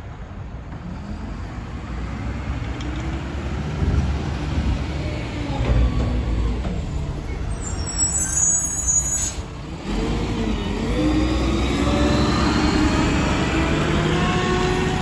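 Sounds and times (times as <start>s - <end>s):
high squeal: 7.2s - 9.6s.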